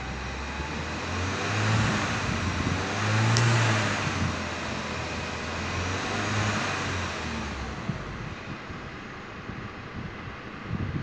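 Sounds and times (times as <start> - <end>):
car engine revving: 0.0 - 8.5.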